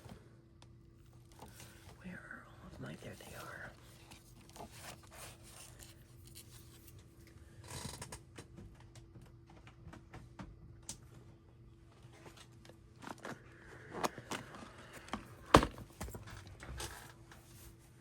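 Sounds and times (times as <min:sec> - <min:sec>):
low steady hum: 0:00.0 - 0:18.0
paper rustling: 0:03.2 - 0:07.0.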